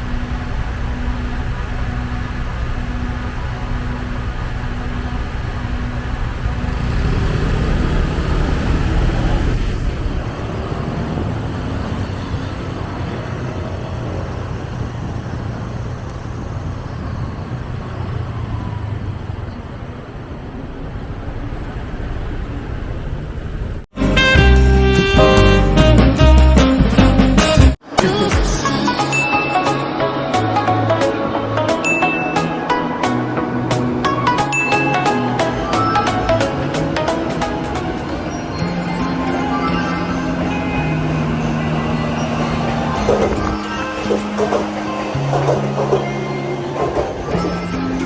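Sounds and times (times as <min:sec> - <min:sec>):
motorcycle and traffic rumble: 0:00.0 - 0:23.9, 0:32.6 - 0:48.0
music: 0:24.0 - 0:48.0.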